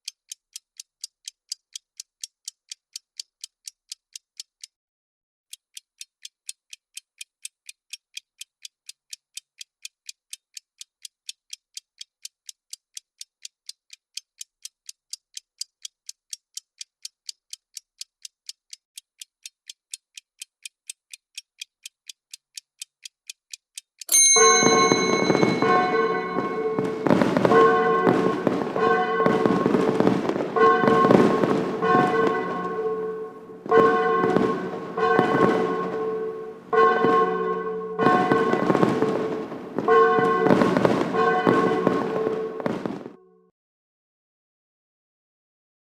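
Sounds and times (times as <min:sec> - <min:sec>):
clock ticking: 0:00.0 - 0:04.8, 0:05.5 - 0:43.1
ringing alert tone: 0:24.1 - 0:30.0
festive music: 0:24.1 - 0:43.0
fireworks crackles and bangs: 0:24.6 - 0:32.9, 0:33.6 - 0:36.1, 0:36.8 - 0:37.4, 0:38.0 - 0:43.2.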